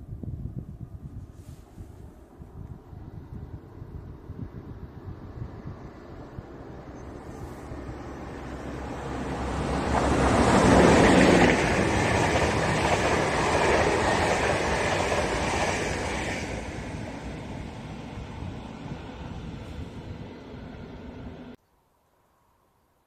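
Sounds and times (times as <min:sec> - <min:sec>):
train passing: 0:05.1 - 0:21.6.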